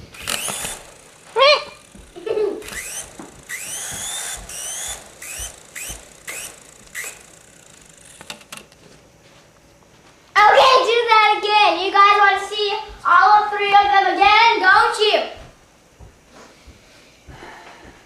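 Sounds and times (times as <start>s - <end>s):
toy helicopter motor whining: 0.0s - 8.8s.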